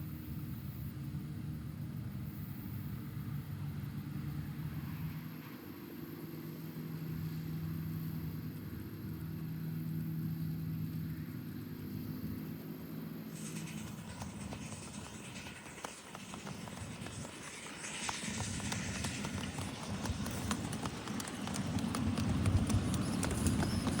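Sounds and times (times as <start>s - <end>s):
small engine running: 3.0s - 24.0s
hissing clatter of clicks: 13.3s - 24.0s.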